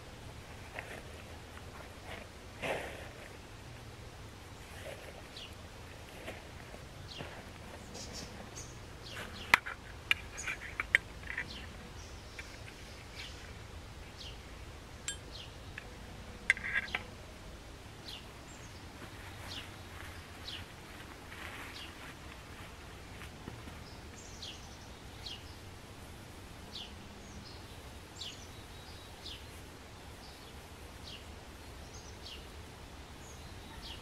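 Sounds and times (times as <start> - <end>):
songbirds chirping: 0.0 - 34.0
sharp clinks: 15.1 - 15.4.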